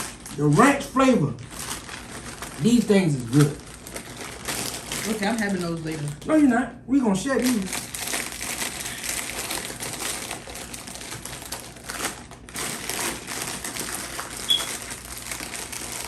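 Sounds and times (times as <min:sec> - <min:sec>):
plastic chip bag crinkling: 0:00.0 - 0:06.4, 0:07.3 - 0:16.0
high squeak: 0:14.5 - 0:14.8.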